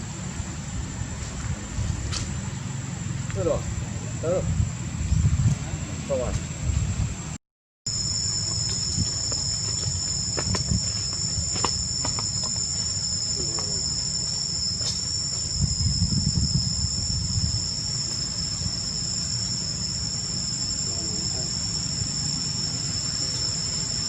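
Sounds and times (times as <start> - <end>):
low rumble: 0.0 - 7.4
insects droning: 0.0 - 24.0.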